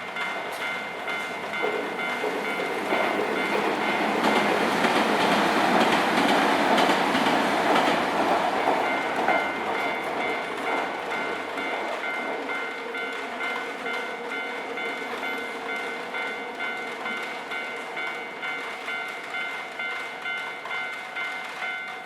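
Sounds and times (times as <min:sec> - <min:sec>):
train wheels clattering over rails: 0:00.0 - 0:15.9
level crossing warning bell: 0:00.0 - 0:22.0.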